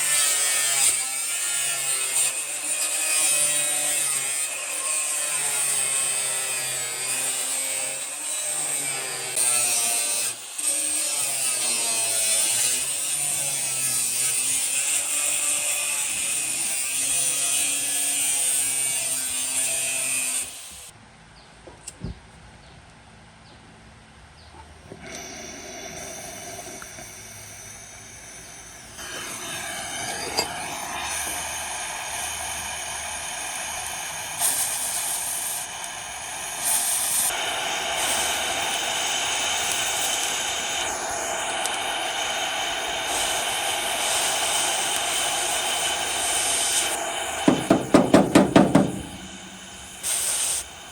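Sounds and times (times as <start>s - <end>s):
power tools grinding metal: 0.0s - 20.9s, 24.9s - 50.9s
power tool whine: 24.9s - 50.9s.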